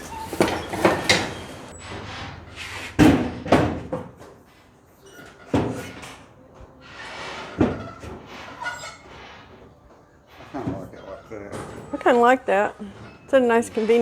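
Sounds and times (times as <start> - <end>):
toolbox knocks and bangs: 0.0 - 1.7, 3.0 - 4.2
scraping and rustling: 0.0 - 3.0.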